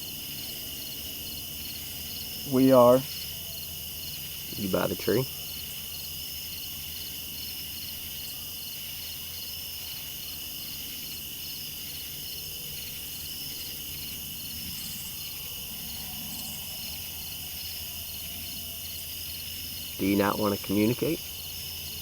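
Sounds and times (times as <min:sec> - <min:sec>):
crickets chirping: 0:00.0 - 0:22.0
insect drone: 0:00.0 - 0:22.0.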